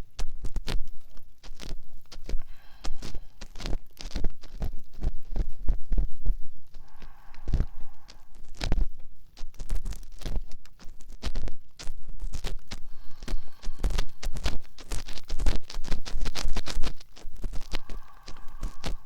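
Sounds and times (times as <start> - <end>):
ear pick scratching microphone: 0.0 - 19.0.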